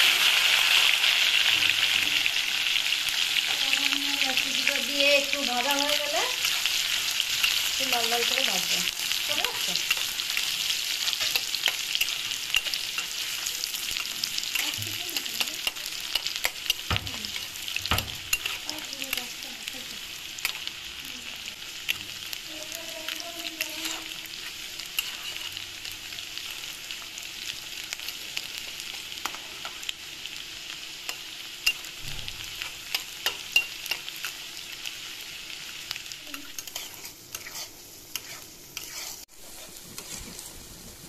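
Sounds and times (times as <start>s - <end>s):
onions sizzling in hot oil: 0.0s - 41.0s
spatula scraping a pan: 6.4s - 19.4s, 23.6s - 25.6s, 36.3s - 40.6s.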